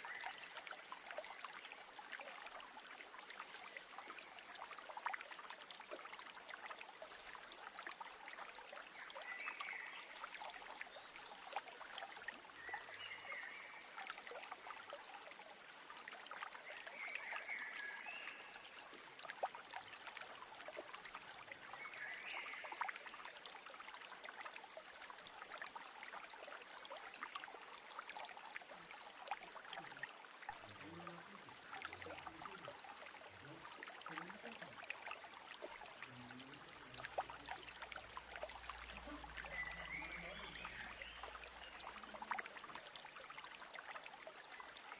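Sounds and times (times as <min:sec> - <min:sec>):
stream water trickling: 0:00.0 - 0:44.9
bird chirping: 0:37.2 - 0:43.0.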